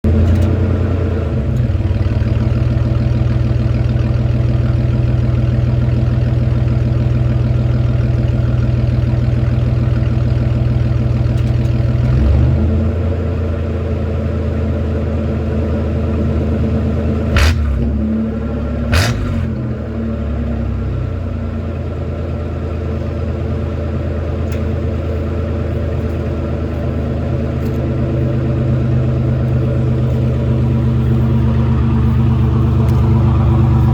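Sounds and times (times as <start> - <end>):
truck engine through loud exhaust: 0.0 - 33.9
sharp exhaust cracks: 17.3 - 18.1, 18.7 - 19.7, 26.0 - 33.9.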